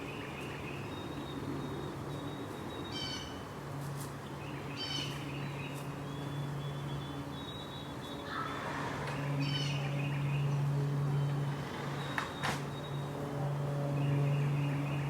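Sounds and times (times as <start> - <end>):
steady low hum: 0.0 - 15.0
bird calling: 4.6 - 10.2.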